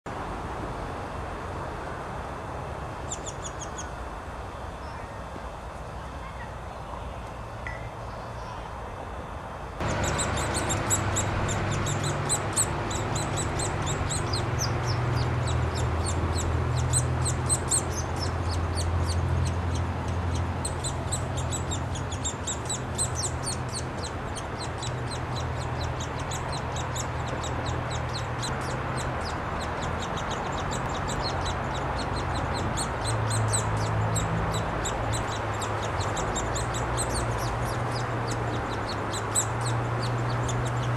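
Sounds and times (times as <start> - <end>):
low steady hum: 0.1 - 40.9
woodpecker nestlings begging: 9.8 - 40.9.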